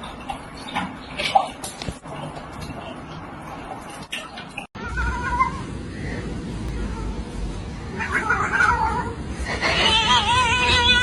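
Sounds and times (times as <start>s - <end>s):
cat yowling: 7.9s - 11.0s.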